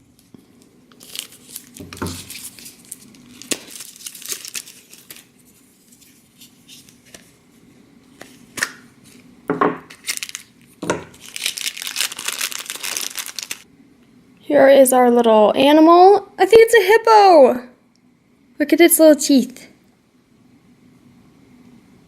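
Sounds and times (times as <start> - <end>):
plastic bag tearing and crinkling: 0.9 - 5.4, 9.9 - 13.6.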